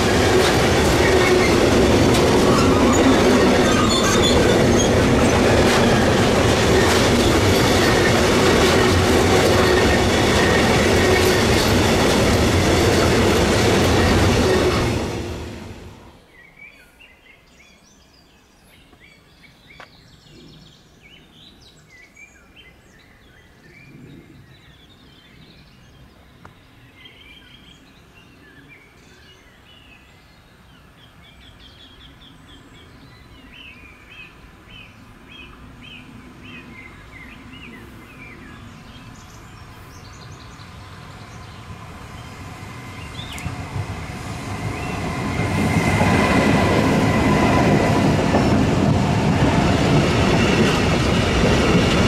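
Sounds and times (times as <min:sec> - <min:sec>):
train rumble: 0:00.0 - 0:16.2, 0:35.9 - 0:52.0
songbirds singing: 0:16.2 - 0:43.7, 0:44.7 - 0:45.3.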